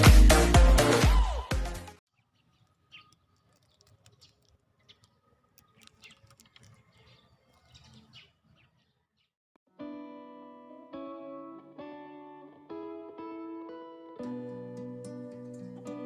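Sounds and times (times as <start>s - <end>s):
faint bird chirps: 2.1s - 9.4s.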